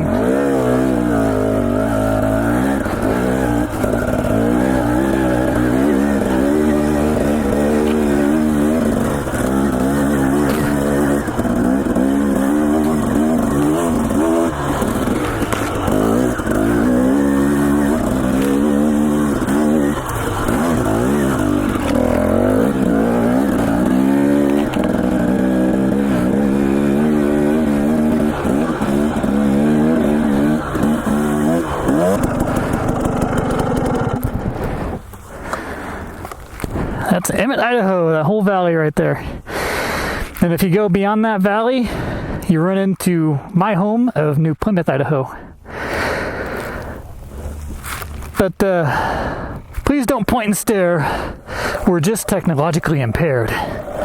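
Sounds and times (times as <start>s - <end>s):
dirt bike engine revving: 0.0s - 38.0s, 50.1s - 54.0s.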